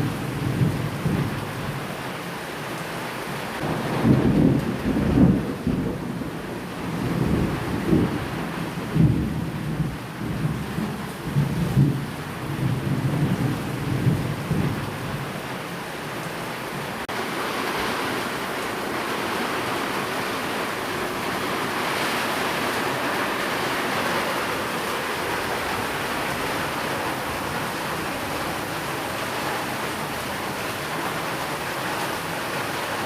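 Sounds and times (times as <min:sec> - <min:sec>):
steady rain: 0:00.0 - 0:33.0
low thunder rumble: 0:03.6 - 0:15.3.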